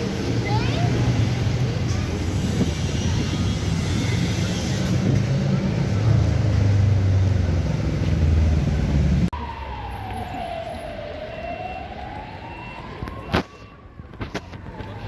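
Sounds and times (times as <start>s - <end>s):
distant siren wailing: 9.3s - 15.0s.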